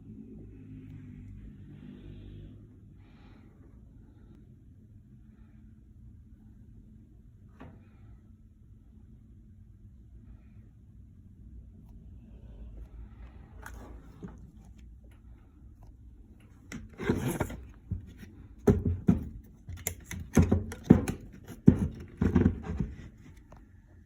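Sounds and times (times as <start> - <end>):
hard objects knocking and rattling: 16.6 - 23.6.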